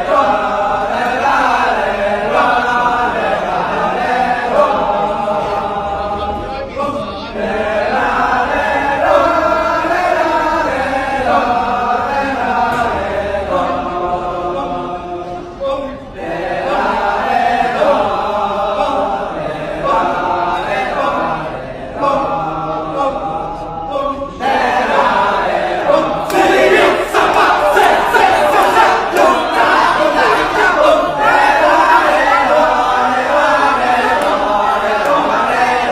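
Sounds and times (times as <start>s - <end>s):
group of voices chanting: 0.0s - 35.9s
group shouting: 24.9s - 35.9s.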